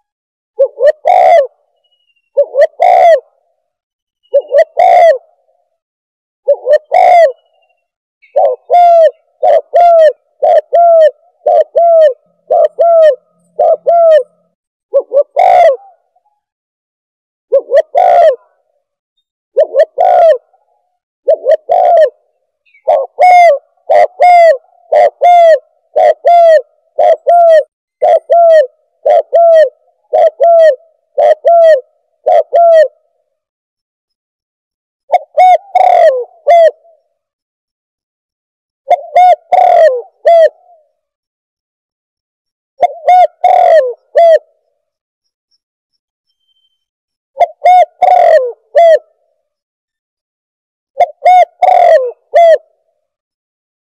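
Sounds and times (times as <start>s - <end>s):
dove cooing: 0.0s - 1.7s, 2.3s - 3.5s, 4.2s - 5.6s, 6.4s - 16.5s, 17.5s - 18.7s, 19.6s - 33.1s, 35.1s - 37.2s, 38.9s - 41.0s, 42.8s - 44.7s, 47.4s - 49.2s, 51.0s - 52.8s.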